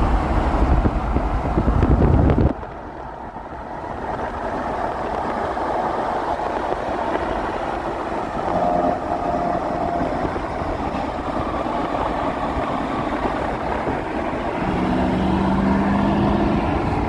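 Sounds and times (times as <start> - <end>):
vehicles rushing at highway speed: 0.0 - 17.0
wind noise on microphone: 0.0 - 17.0
faint engine tone: 8.4 - 13.1.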